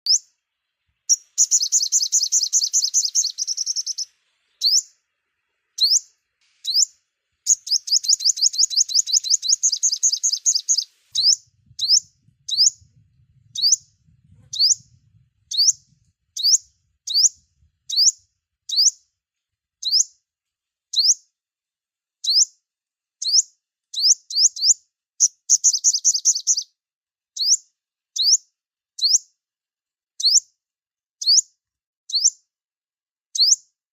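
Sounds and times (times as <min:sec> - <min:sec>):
songbird chirping and trilling: 0:00.0 - 0:19.1, 0:19.8 - 0:20.2, 0:20.9 - 0:21.3, 0:22.2 - 0:22.6, 0:23.2 - 0:26.8, 0:27.4 - 0:28.4, 0:29.0 - 0:29.3, 0:30.2 - 0:30.5, 0:31.2 - 0:31.4, 0:32.1 - 0:32.4, 0:33.4 - 0:33.6.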